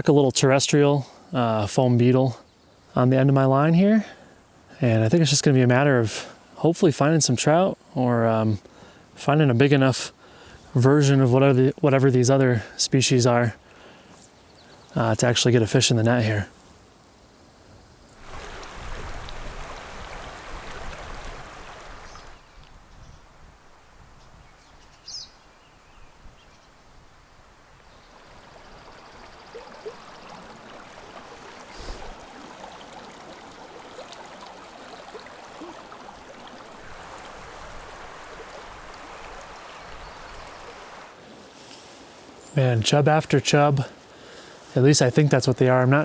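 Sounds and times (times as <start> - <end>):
creek water rushing: 18.2 - 22.7, 27.4 - 46.0.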